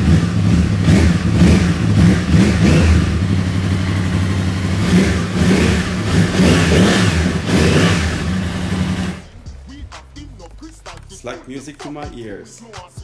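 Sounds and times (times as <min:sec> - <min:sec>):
motorcycle engine revving: 0:00.0 - 0:10.4.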